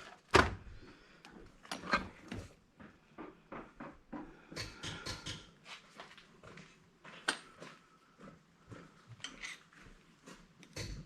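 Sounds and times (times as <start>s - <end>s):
tools and parts clinking on workbench: 7.2s - 7.6s.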